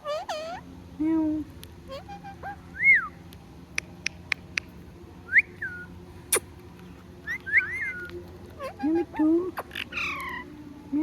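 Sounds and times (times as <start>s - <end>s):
parrot whistling: 7.3s - 8.1s.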